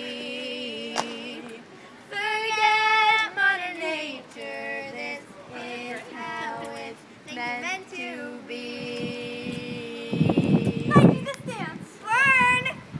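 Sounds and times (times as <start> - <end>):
girls singing with vibrato: 0.0 - 11.4.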